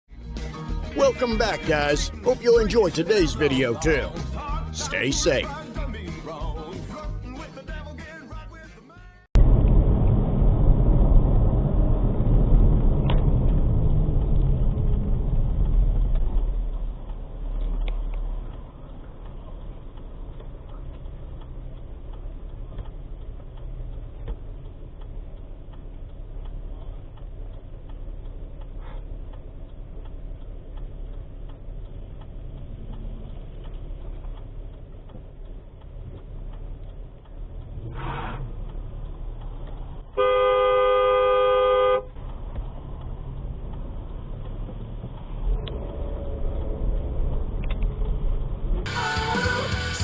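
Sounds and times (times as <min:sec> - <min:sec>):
vehicle rumble on road: 0:09.4 - 0:50.0
car horn blast: 0:40.2 - 0:42.1.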